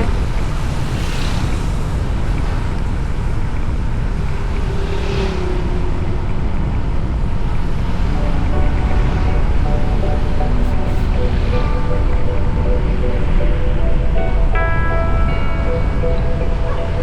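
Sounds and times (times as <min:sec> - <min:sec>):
wind rushing over microphone: 0:00.0 - 0:17.0
faint low held tone: 0:08.1 - 0:14.6.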